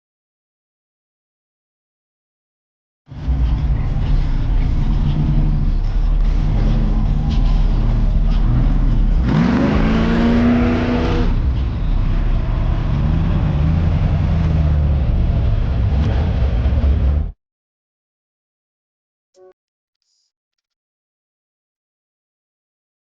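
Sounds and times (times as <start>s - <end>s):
car engine idling and revving: 3.1s - 17.4s.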